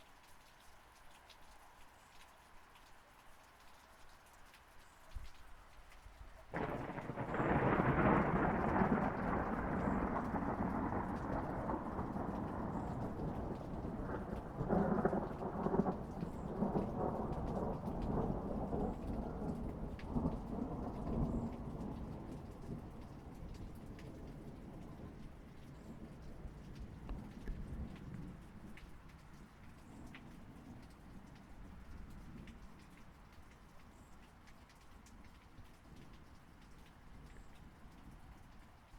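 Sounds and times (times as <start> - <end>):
steady rain: 0.0 - 38.9
thunder crack and rumble: 6.5 - 28.7.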